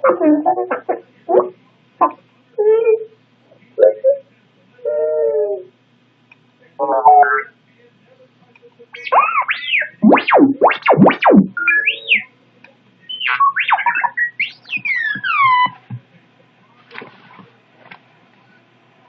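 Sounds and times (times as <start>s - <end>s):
toy robot beeping and whistling: 9.0s - 12.3s, 13.1s - 15.8s.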